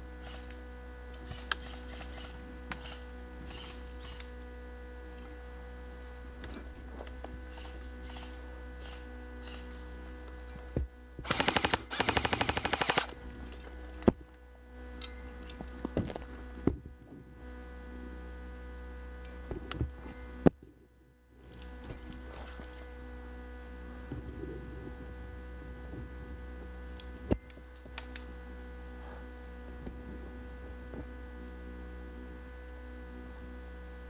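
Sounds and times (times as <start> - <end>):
steady hum: 0.0 - 34.0
airsoft gun firing: 11.3 - 13.2.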